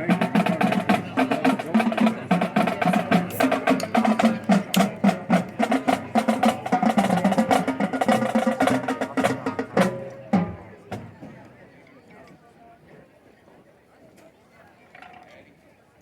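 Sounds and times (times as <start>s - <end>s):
marching band playing: 0.0s - 11.2s.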